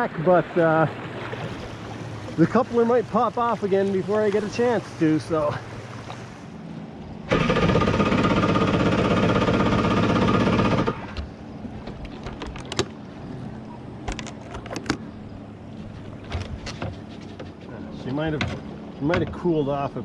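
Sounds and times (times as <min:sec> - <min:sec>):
engine cranking on electric starter: 0:07.3 - 0:11.4.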